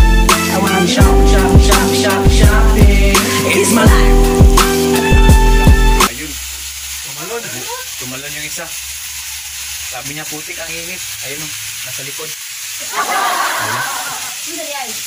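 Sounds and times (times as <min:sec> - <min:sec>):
song playing: 0:00.0 - 0:06.1
food sizzling in a wok: 0:00.0 - 0:15.0.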